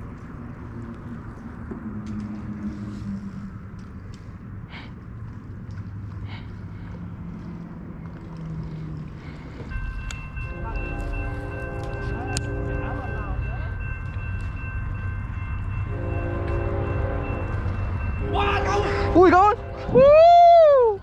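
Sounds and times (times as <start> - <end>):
steady high tones: 9.7 - 20.0.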